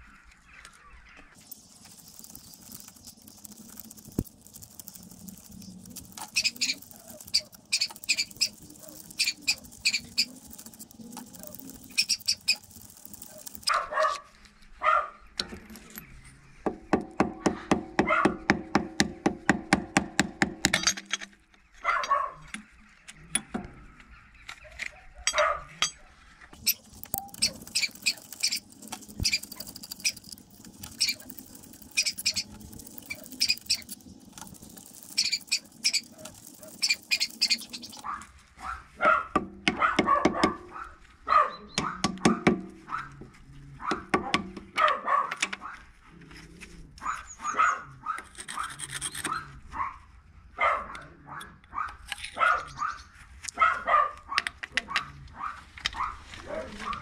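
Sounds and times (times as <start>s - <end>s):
rapid ratcheting clicks: 1.4s - 13.8s, 26.5s - 38.1s
dog barking: 13.4s - 15.2s, 18.0s - 18.4s, 21.8s - 22.5s, 24.9s - 25.8s, 38.0s - 43.2s, 43.8s - 45.8s, 47.0s - 48.2s, 49.3s - 53.0s, 53.6s - 57.0s.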